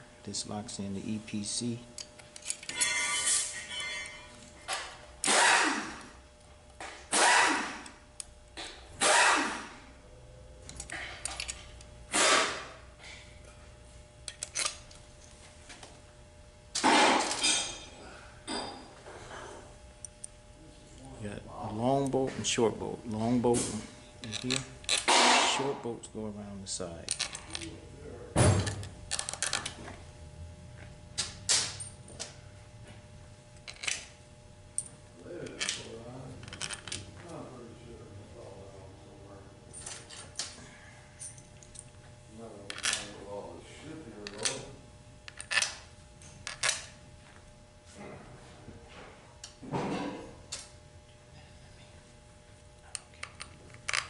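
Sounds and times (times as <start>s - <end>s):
metal tools clinking: 2.0s - 4.8s, 24.2s - 25.1s, 35.5s - 37.0s.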